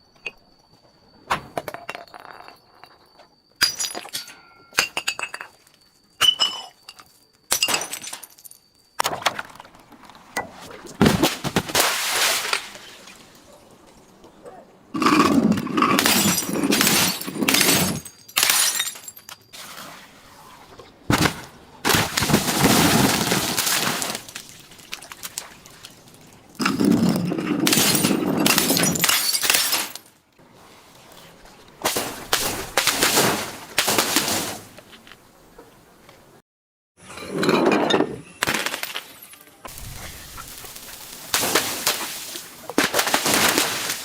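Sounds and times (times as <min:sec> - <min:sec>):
glass bottles shattering and crunching: 0:01.6 - 0:14.2, 0:15.0 - 0:19.6, 0:21.1 - 0:30.2, 0:37.1 - 0:44.0.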